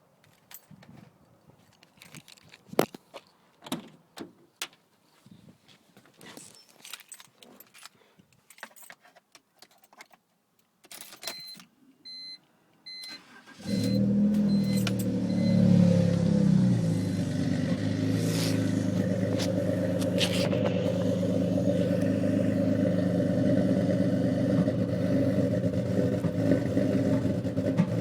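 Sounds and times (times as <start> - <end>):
keys rattling: 6.3 - 10.2
short electronic beeps: 11.3 - 13.1, 13.7 - 15.7
car engine starting and idling: 12.9 - 28.0.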